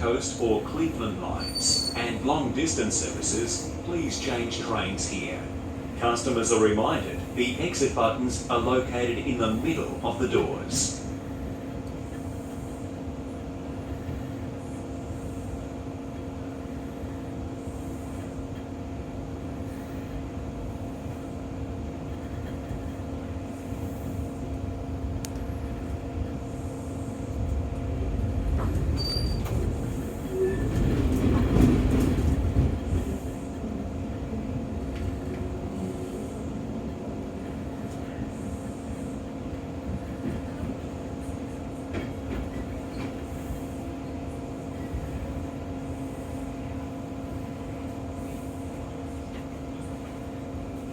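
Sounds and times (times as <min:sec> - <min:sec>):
electric train hum: 0:00.0 - 0:50.9
wheels rumbling on track: 0:21.4 - 0:38.3.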